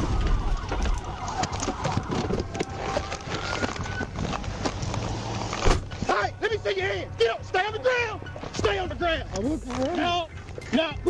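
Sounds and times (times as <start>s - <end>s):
faint police siren wailing: 0.0s - 4.4s, 9.4s - 10.4s.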